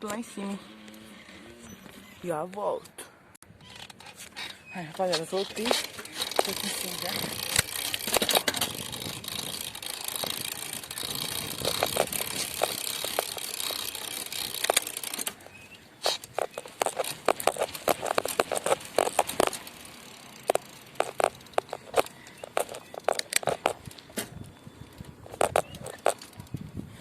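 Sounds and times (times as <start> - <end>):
wind and road noise: 0.0 - 27.0
bicycle rattling: 3.4 - 27.0
irregular clicks and knocks: 11.6 - 19.8, 20.4 - 24.3.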